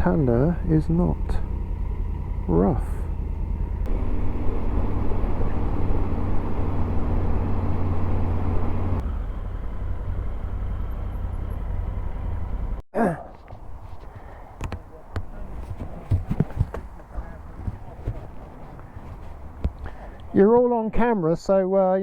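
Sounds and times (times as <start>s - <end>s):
motorcycle engine running: 0.0s - 12.8s
brief vocal sound: 13.0s - 13.3s.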